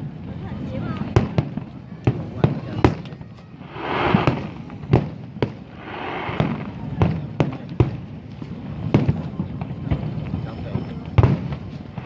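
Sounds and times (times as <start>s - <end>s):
crackling hiss: 3.4s - 7.5s
firework shells bursting: 3.6s - 7.3s.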